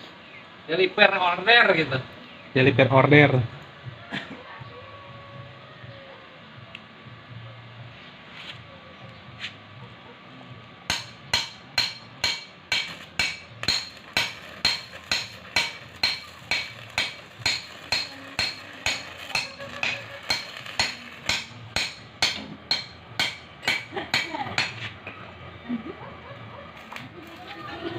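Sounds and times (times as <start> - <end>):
hammer striking metal: 10.9 - 24.9.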